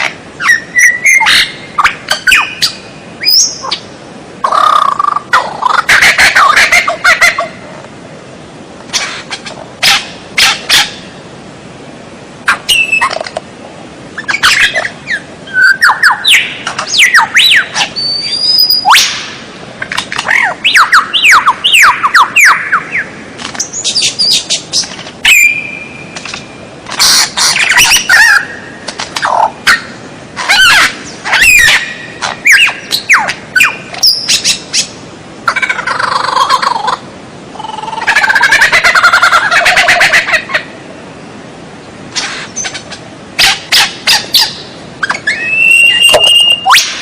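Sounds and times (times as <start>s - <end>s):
songbird whistles and chirps: 0.4s - 3.8s, 12.5s - 13.2s, 14.2s - 19.3s, 20.2s - 26.4s, 43.7s - 47.0s.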